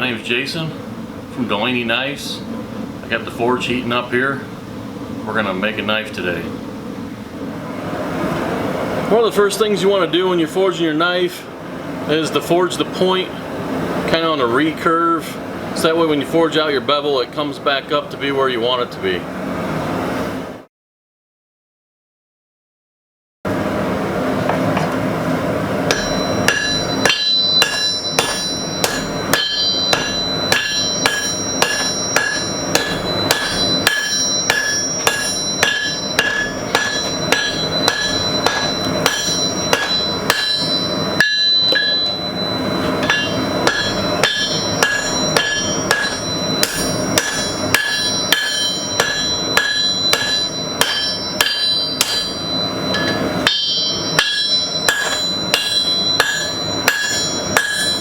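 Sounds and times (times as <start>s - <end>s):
hammer ringing on anvil: 25.8s - 58.0s.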